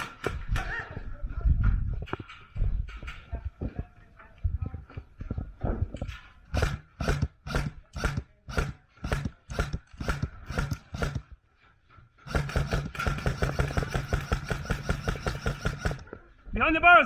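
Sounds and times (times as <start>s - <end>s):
footsteps: 0.0s - 16.3s
fast even rattle: 6.5s - 11.3s, 12.3s - 16.1s.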